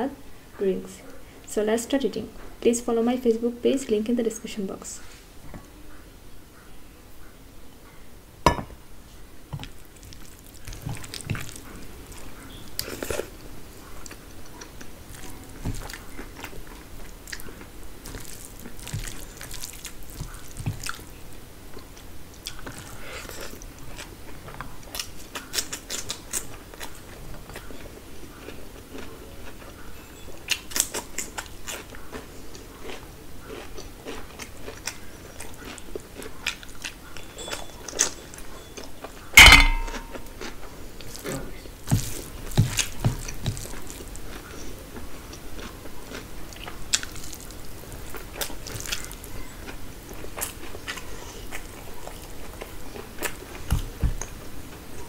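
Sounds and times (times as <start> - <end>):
chewing with wet clicks: 9.6 - 21.2, 21.8 - 39.3, 39.9 - 54.4.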